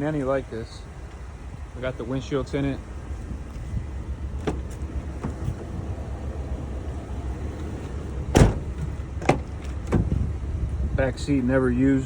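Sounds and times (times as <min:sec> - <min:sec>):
steady low rumble: 0:00.0 - 0:12.0
car door latch clicking: 0:04.4 - 0:05.7, 0:08.3 - 0:10.2.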